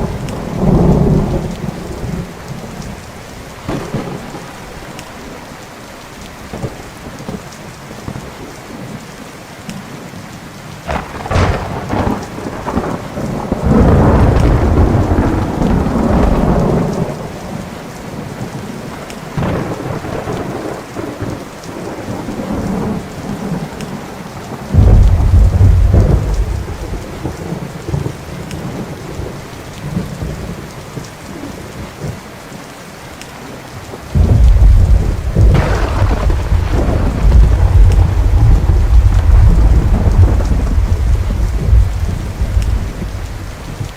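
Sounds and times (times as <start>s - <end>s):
thunder rumbling: 0.0s - 5.4s, 10.9s - 32.2s, 33.4s - 43.9s
steady rain: 0.0s - 43.9s.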